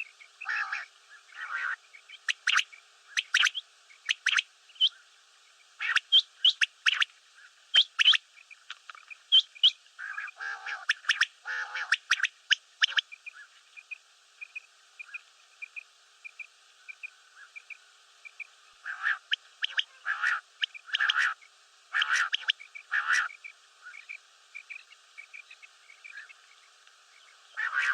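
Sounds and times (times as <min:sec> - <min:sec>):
quail calling: 0:00.4 - 0:05.0, 0:05.8 - 0:07.1, 0:07.8 - 0:08.2, 0:09.3 - 0:13.5, 0:18.8 - 0:24.8, 0:27.5 - 0:27.9.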